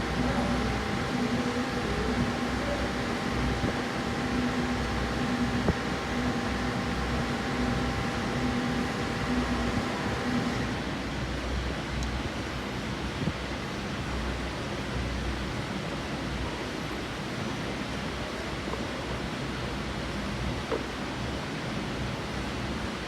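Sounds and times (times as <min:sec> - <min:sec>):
machine hum with low throb: 0:00.0 - 0:12.3.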